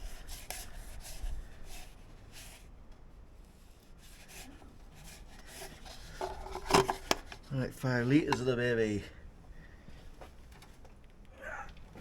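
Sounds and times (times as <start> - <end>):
faint handling rustles and scrapes: 0.0 - 8.5.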